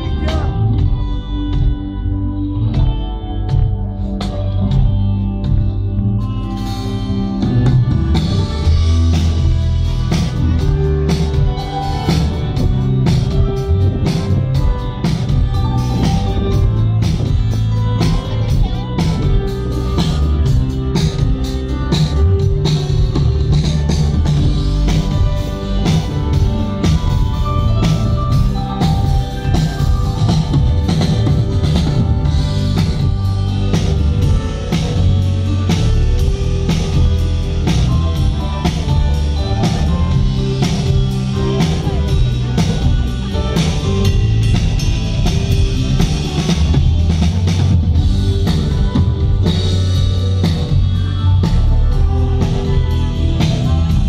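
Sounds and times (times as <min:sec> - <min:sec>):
rock band through sound system: 0:00.0 - 0:54.0
drum kit steady beat: 0:02.8 - 0:54.0.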